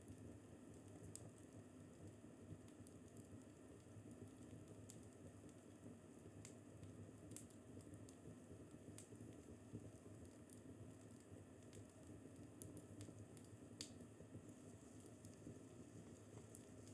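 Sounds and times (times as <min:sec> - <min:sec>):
fireplace crackling: 0:06.4 - 0:16.9
fire popping: 0:10.2 - 0:14.1.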